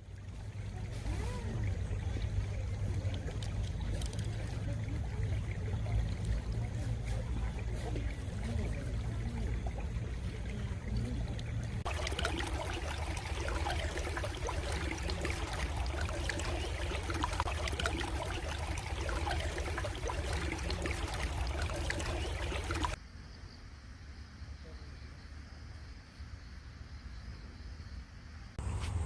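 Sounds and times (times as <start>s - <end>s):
stream babbling and trickling: 0.0s - 23.0s.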